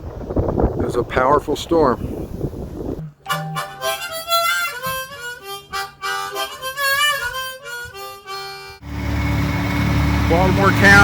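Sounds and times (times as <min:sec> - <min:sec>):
instrumental music with beat: 0:03.0 - 0:08.8.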